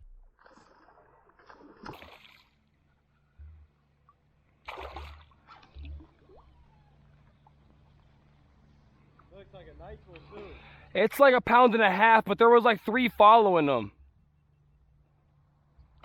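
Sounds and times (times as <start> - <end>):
river water splashing: 0.4 - 3.3, 4.0 - 9.5.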